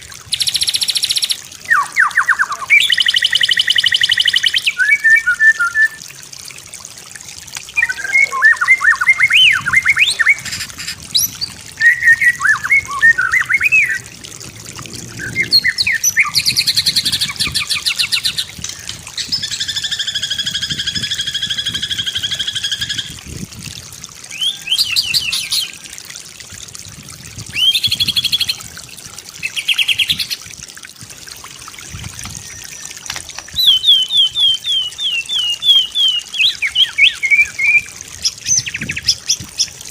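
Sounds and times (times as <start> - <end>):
bird singing varied song: 0.3 - 6.0, 7.8 - 14.1, 15.2 - 23.2, 32.0 - 39.7.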